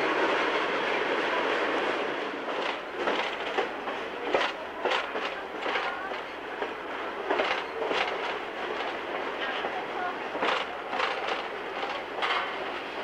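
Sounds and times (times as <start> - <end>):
train cars rolling on track: 0.0 - 13.0
wheels knocking and clacking: 2.5 - 9.8, 10.4 - 12.8.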